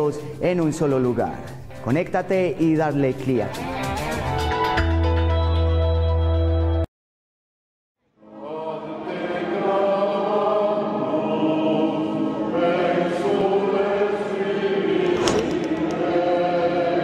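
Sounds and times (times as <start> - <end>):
choral chant: 8.1 - 17.0.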